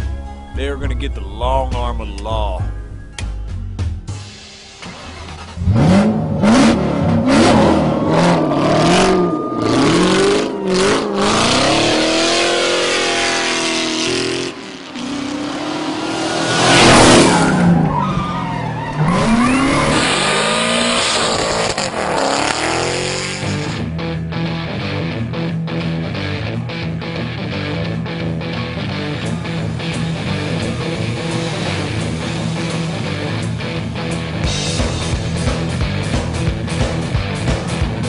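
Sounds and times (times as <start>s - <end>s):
vehicle engines revving: 4.8s - 23.9s, 28.1s - 38.0s
loud tyre skid: 6.7s - 23.8s.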